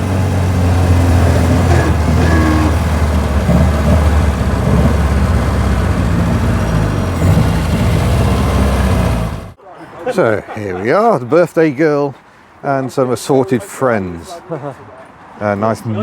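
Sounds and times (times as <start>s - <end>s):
car engine and road noise: 0.0s - 9.6s.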